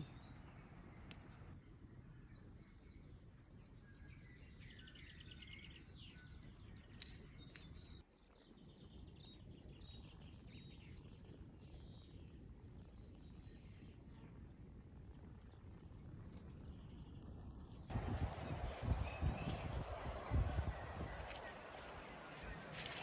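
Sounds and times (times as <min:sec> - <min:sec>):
low outdoor background hum: 0:00.0 - 0:23.0.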